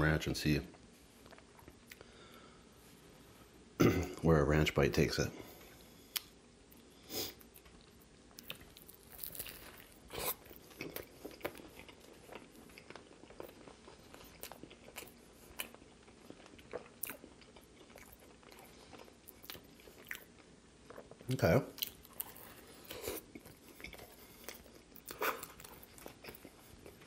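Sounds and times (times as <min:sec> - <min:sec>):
food crunching: 0:06.2 - 0:27.0
wet chewing: 0:07.4 - 0:27.0.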